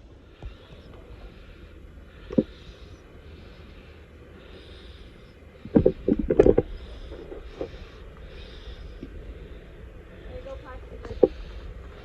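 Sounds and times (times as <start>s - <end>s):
vehicle engine low rumble: 0.0s - 12.0s
clunks and scrapes on rock: 5.7s - 7.9s.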